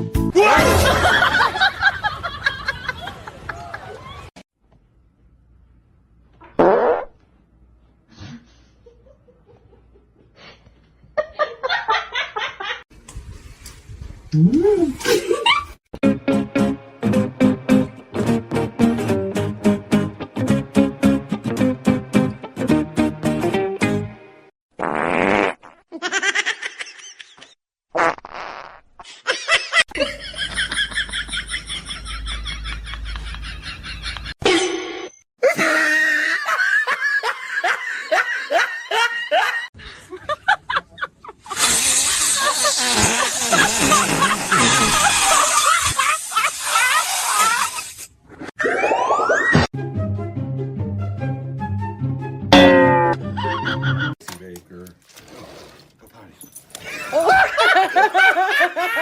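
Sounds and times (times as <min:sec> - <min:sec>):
person laughing: 0:14.5 - 0:15.8, 0:35.4 - 0:47.9, 0:53.2 - 0:54.2, 0:56.8 - 0:59.0.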